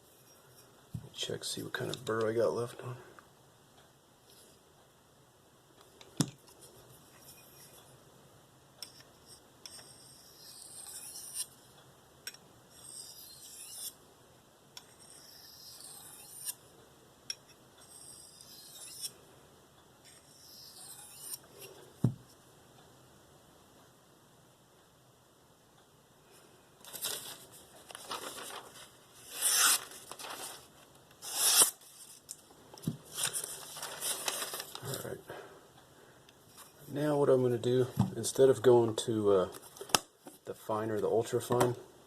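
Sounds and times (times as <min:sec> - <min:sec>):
knife scraping on sharpening stone: 0:09.7 - 0:11.5, 0:12.8 - 0:13.9, 0:14.9 - 0:16.6, 0:17.9 - 0:19.1, 0:20.3 - 0:21.4.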